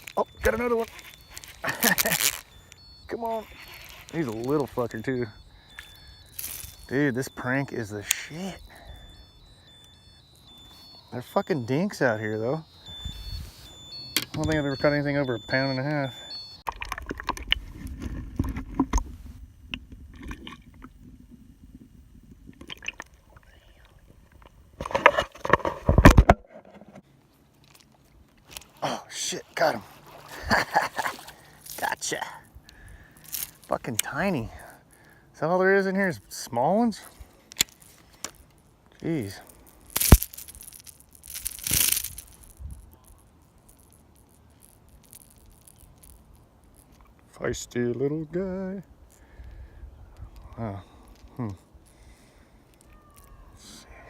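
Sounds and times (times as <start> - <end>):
fish thrashing and rattling lure: 0.0 - 23.4, 29.8 - 35.1, 37.5 - 47.4
water sloshing: 29.7 - 31.6.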